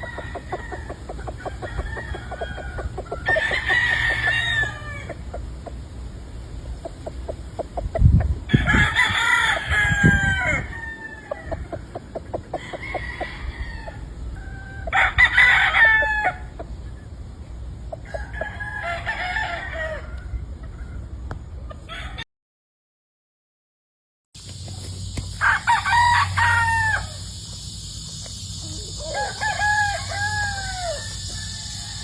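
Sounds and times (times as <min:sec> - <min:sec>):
roosters crowing: 0:00.0 - 0:06.1, 0:06.8 - 0:17.0, 0:17.9 - 0:21.2, 0:21.8 - 0:22.2, 0:25.3 - 0:32.0
chicken clucking: 0:00.0 - 0:09.0, 0:10.5 - 0:15.2.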